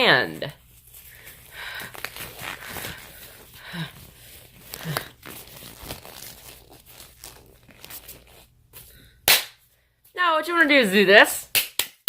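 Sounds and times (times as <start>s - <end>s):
glove crinkling and rustling: 0.4s - 9.2s.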